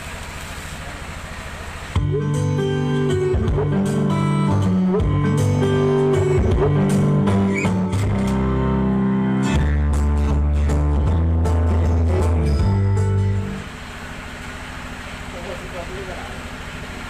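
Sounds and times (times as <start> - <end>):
loud music through sound system: 2.0 - 13.6
plucked guitar-like notes: 2.0 - 13.6
deep heavy bass note: 2.0 - 13.8.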